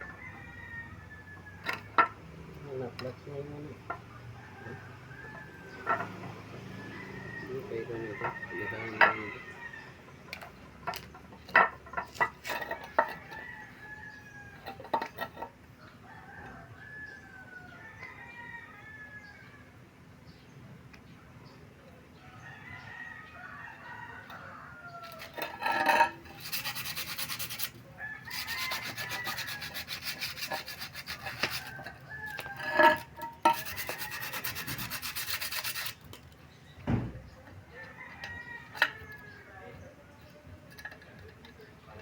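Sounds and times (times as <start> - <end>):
rooster crowing: 0.0 - 2.0, 4.2 - 10.1, 12.6 - 14.8, 16.0 - 19.7, 22.2 - 26.0, 27.9 - 30.0, 31.2 - 34.9, 37.6 - 39.8
harsh rasping noise: 25.1 - 36.2.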